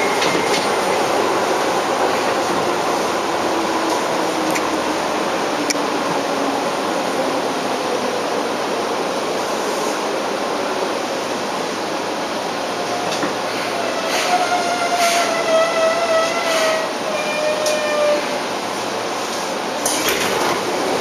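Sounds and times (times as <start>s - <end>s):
electric train rolling: 0.0s - 21.0s
high brake squeal: 13.5s - 18.4s.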